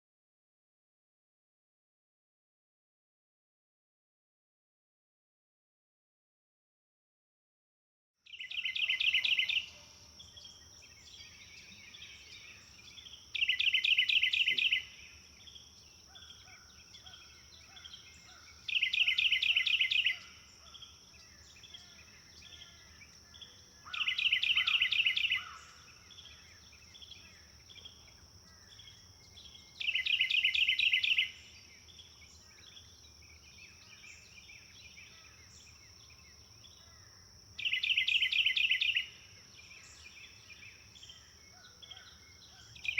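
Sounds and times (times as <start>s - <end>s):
songbird trilling: 8.3s - 37.0s, 37.6s - 42.9s
birds chirping: 8.3s - 42.9s.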